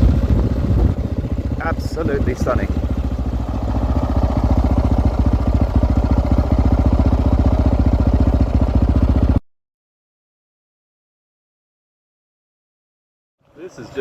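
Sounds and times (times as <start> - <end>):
dirt bike engine running: 0.0 - 9.4.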